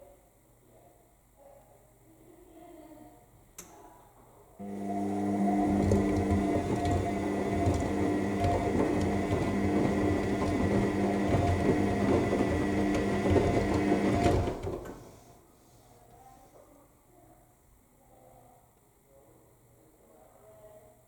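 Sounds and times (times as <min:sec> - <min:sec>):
wet laundry churning: 0:04.6 - 0:15.1
washing machine motor hum: 0:04.6 - 0:15.3.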